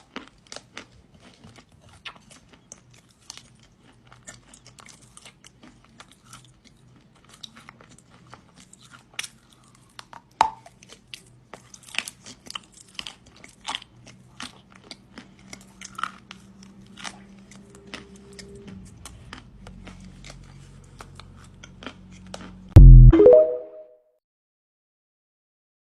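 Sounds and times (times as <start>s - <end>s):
crunching and chewing clay: 0.0s - 22.7s
loud low burst: 22.8s - 23.4s.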